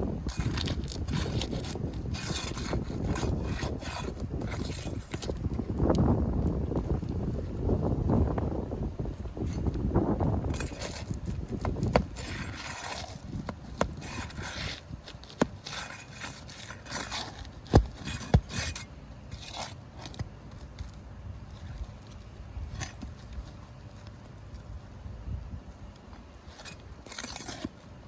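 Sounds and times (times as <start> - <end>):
flat bar scraping shingles: 0.0 - 5.6, 10.5 - 24.6, 26.0 - 28.0
wind buffeting microphone: 0.0 - 17.0, 24.8 - 25.9.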